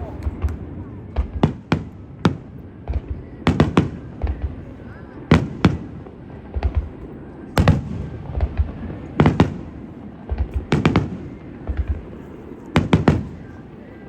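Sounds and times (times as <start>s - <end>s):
fireworks bursting with bangs: 0.0s - 14.0s.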